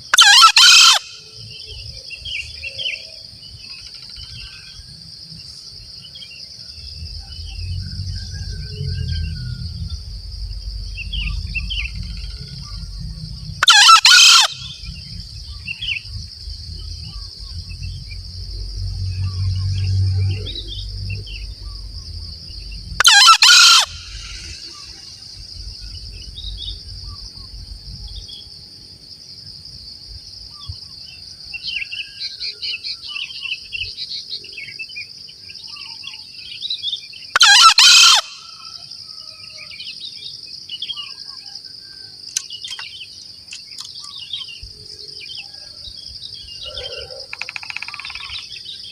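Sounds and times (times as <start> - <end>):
high insect drone: 0.0 - 48.9
junglefowl crowing: 0.1 - 1.4, 13.6 - 15.0, 23.0 - 25.1, 37.4 - 39.7, 46.6 - 48.4
small bird chirps: 40.8 - 45.8, 46.4 - 48.9.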